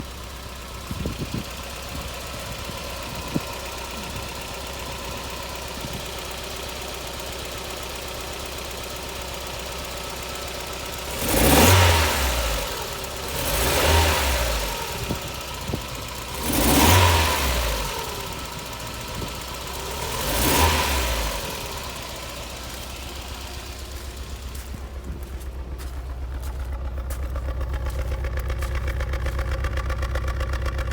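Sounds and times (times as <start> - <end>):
car engine idling with misfire: 0.0 - 30.9
engine revving in blips: 11.1 - 30.9.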